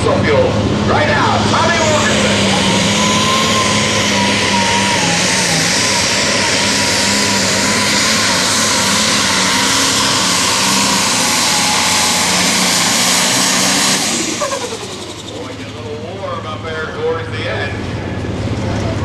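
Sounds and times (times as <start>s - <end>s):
tractor engine at full power: 0.0s - 19.0s
turbo whistle: 1.6s - 15.8s.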